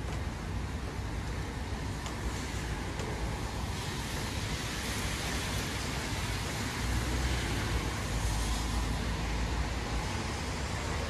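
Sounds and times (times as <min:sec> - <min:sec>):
heavy rain hissing: 0:02.2 - 0:11.0.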